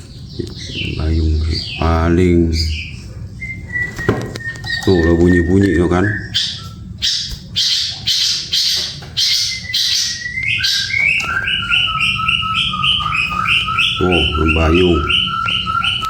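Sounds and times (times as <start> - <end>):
songbird harsh raspy calls: 0.0 - 16.0.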